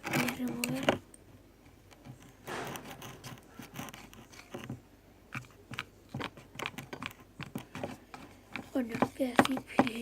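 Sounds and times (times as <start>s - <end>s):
spoon stirring sticky slime: 3.0s - 10.0s.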